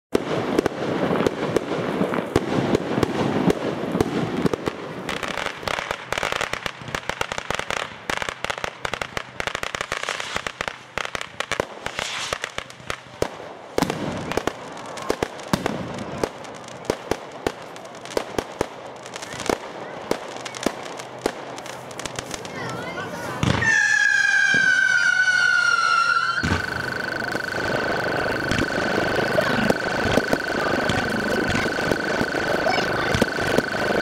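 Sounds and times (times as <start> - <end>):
fireworks crackling: 0.1 - 34.0
hiss: 11.7 - 12.6.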